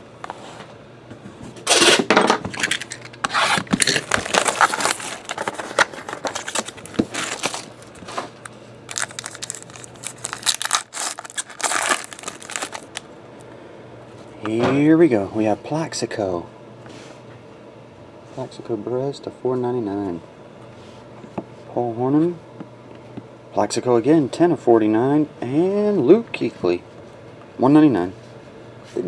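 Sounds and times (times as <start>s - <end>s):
wrapper and cardboard rustling: 1.7s - 13.0s
packaging tearing: 1.7s - 13.1s.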